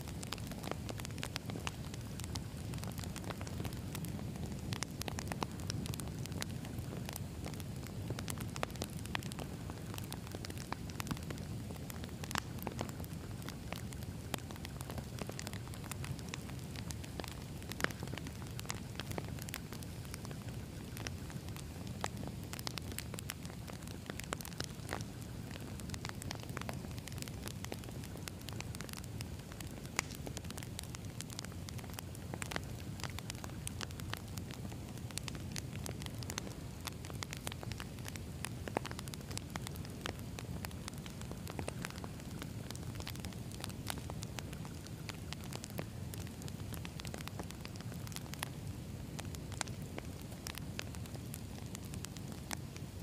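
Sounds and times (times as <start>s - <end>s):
campfire crackling and popping: 0.0s - 53.0s.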